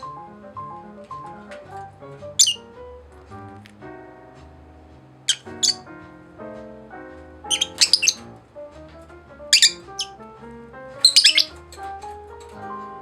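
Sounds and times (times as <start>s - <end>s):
background music with sustained notes: 0.0s - 13.0s
parakeets chirping and squawking: 2.4s - 2.6s, 5.3s - 5.8s, 7.5s - 8.2s, 9.6s - 10.2s, 11.0s - 11.7s.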